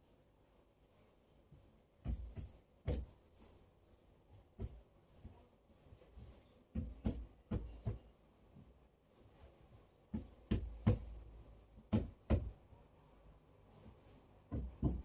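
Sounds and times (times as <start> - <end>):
light knocks and thumps: 2.0 - 3.3, 6.2 - 8.2, 10.1 - 12.6, 14.5 - 15.0.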